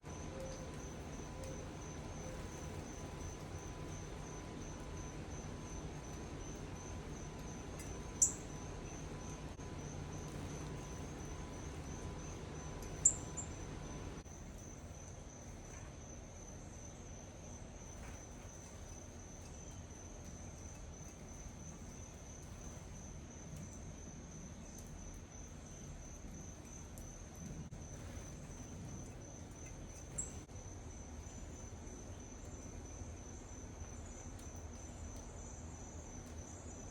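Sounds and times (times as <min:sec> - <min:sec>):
crickets trilling: 0:00.0 - 0:36.9
sharp high bird chirps: 0:08.2 - 0:08.5, 0:13.0 - 0:13.6.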